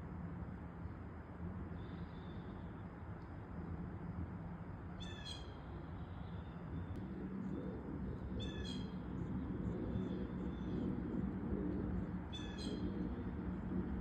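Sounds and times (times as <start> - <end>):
low background rumble: 0.0 - 14.0
blue jay calling: 5.0 - 5.6, 8.4 - 8.9, 12.3 - 12.9.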